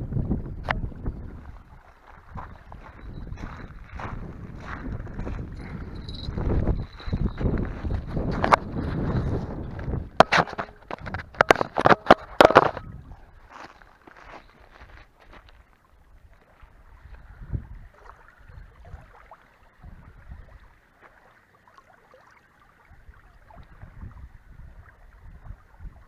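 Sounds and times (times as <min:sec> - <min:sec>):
wind gusting on microphone: 0:00.0 - 0:13.6, 0:16.2 - 0:19.2, 0:22.9 - 0:26.0
water lapping: 0:00.8 - 0:24.0.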